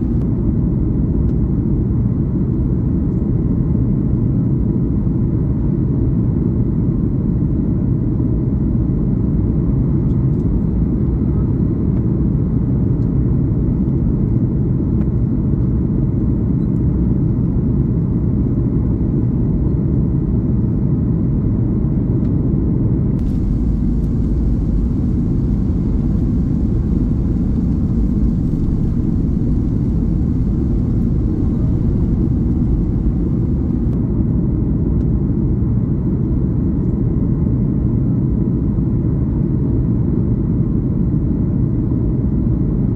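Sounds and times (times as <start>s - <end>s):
airplane cabin engine rumble: 0.0s - 19.7s, 23.2s - 36.4s.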